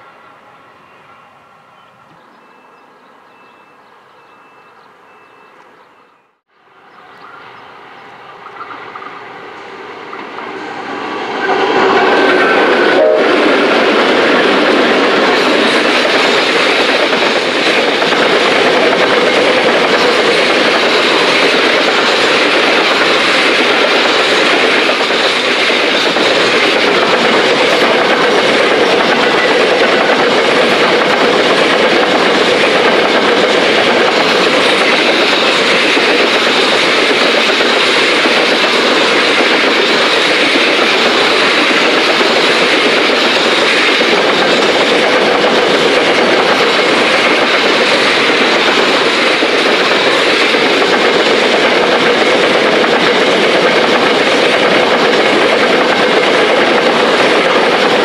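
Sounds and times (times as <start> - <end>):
train wheels rolling on rails: 0.0 - 58.0.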